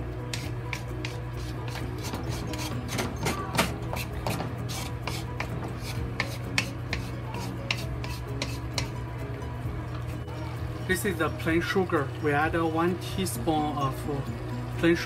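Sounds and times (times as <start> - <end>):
spatula scraping a steel wok: 0.0 - 9.0.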